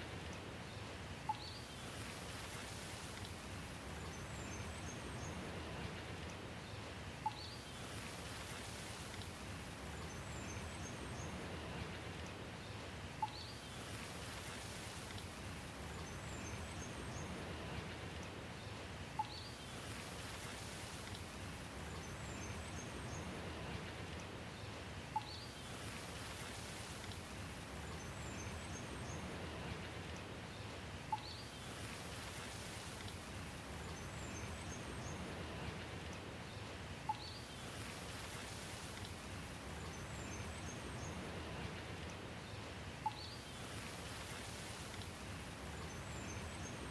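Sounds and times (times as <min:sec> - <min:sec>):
steady rain hiss: 0:00.0 - 0:46.9
faint bird chirps: 0:01.3 - 0:02.0, 0:07.2 - 0:08.0, 0:13.2 - 0:14.0, 0:19.2 - 0:20.0, 0:25.1 - 0:26.5, 0:31.1 - 0:31.7, 0:37.1 - 0:37.9, 0:43.0 - 0:43.8.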